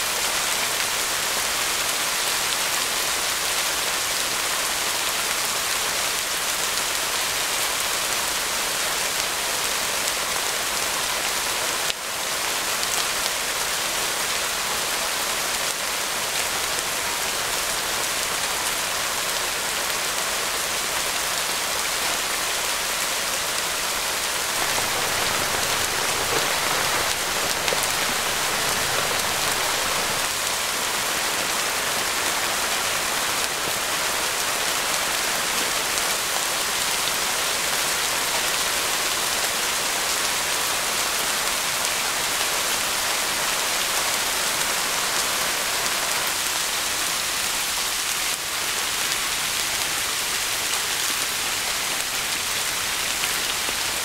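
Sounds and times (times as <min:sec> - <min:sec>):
rain on a tarp: 0:00.0 - 0:54.0.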